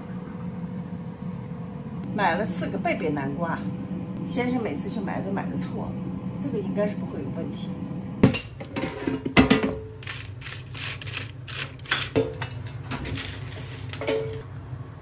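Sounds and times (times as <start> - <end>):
steady low hum: 0.0 - 15.0
cookware clinking: 14.0 - 14.4.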